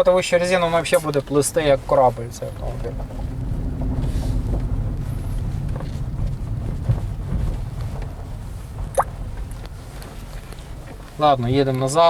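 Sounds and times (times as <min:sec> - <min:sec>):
road and tyre rumble in car: 0:00.0 - 0:12.0.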